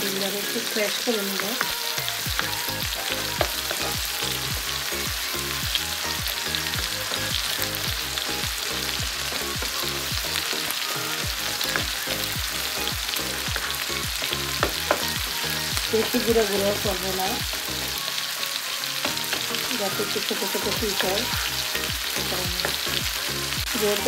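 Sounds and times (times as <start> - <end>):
chicken and egg sizzling: 0.0 - 24.0
electronic music with steady beat: 2.0 - 17.8.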